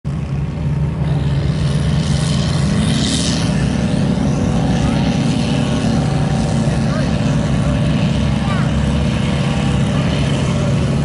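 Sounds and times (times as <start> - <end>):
truck engine revving: 0.1 - 11.0.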